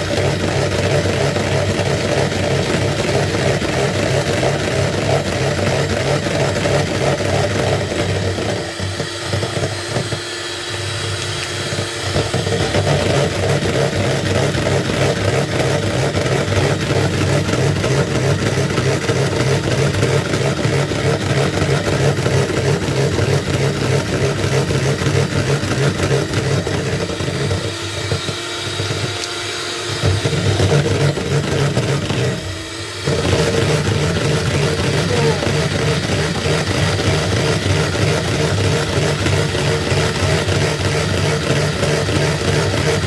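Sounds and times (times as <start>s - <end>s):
small electric motor running: 0.0s - 43.0s.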